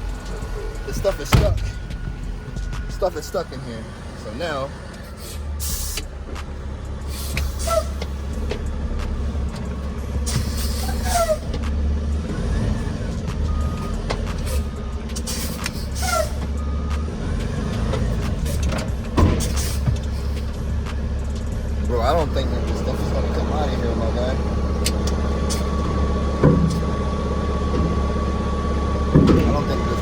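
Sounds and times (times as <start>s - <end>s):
diesel truck engine droning: 0.0s - 30.0s
high falling squeaks: 7.2s - 8.4s, 10.3s - 11.6s.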